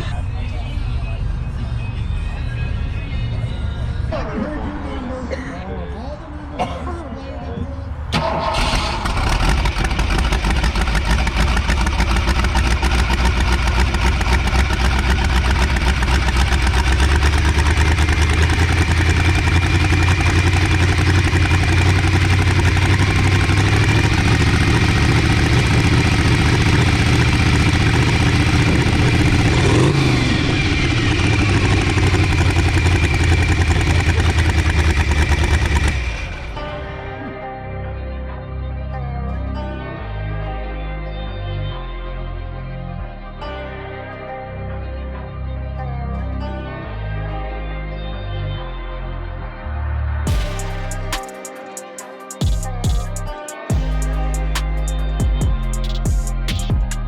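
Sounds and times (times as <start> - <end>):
vehicle engine rumbling: 0.0 - 37.5, 50.3 - 51.2, 52.4 - 57.0
soft music: 36.4 - 57.0.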